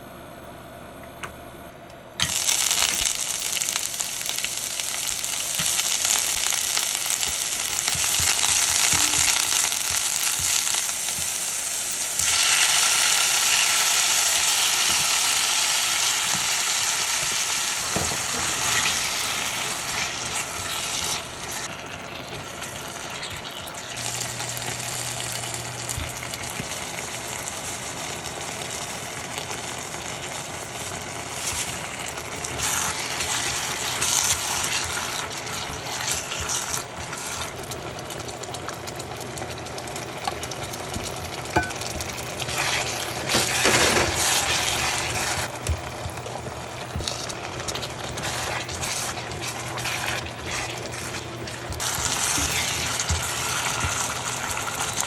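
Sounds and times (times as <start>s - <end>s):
food sizzling in a hot pan: 2.2s - 55.0s
utensil knocking while stirring: 45.5s - 47.2s.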